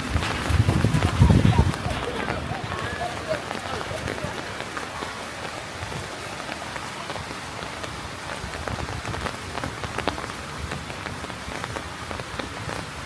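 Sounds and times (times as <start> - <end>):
rain hiss: 0.0 - 13.0
raindrops tapping: 0.0 - 13.0.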